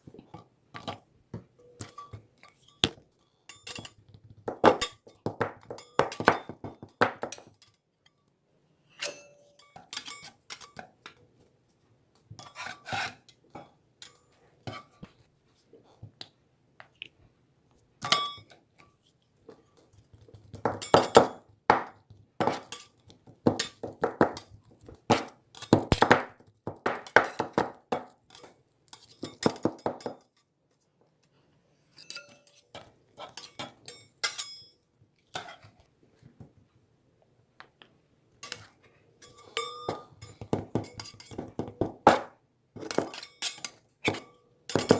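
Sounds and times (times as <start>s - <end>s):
hard objects clinking and knocking: 0.4s - 8.2s, 18.0s - 30.5s, 38.4s - 44.9s.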